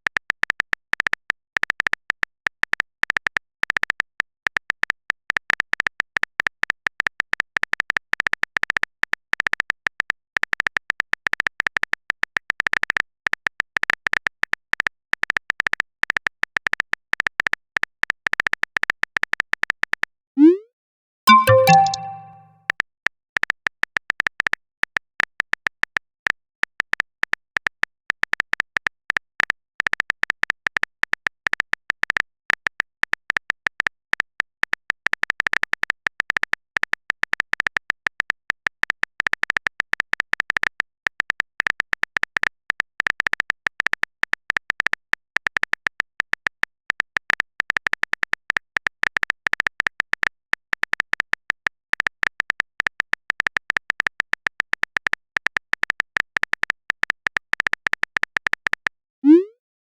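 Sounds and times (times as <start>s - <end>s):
keyboard typing clicks: 20.4s - 20.6s, 21.3s - 22.5s.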